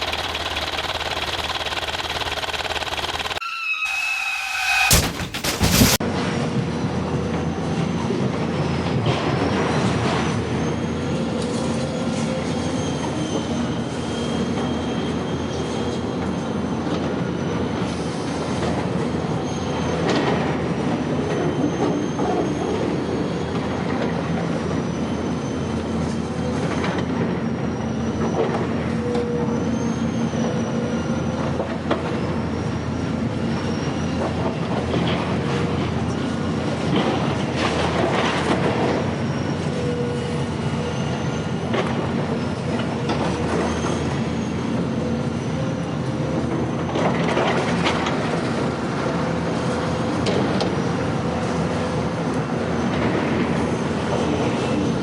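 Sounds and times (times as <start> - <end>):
high-pitched squeal: 0.0 - 6.0
rolling rattling mechanical noise: 0.0 - 6.4.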